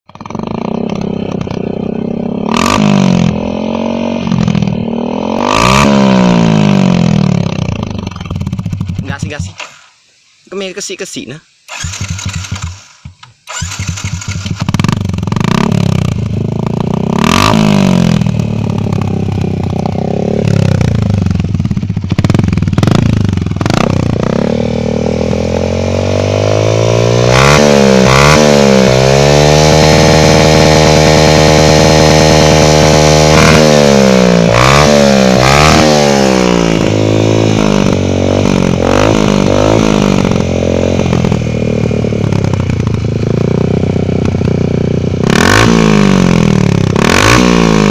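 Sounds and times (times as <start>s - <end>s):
motorcycle engine revving: 0.0s - 10.0s, 11.7s - 47.9s.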